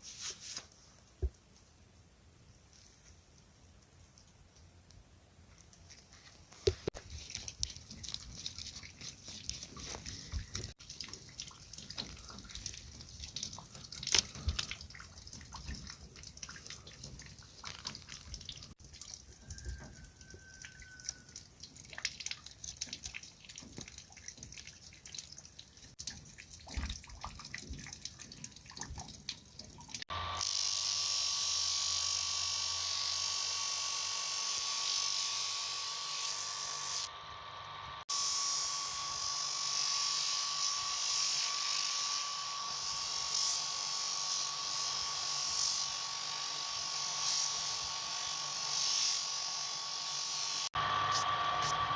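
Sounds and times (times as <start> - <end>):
power tool whining: 30.1 - 51.9.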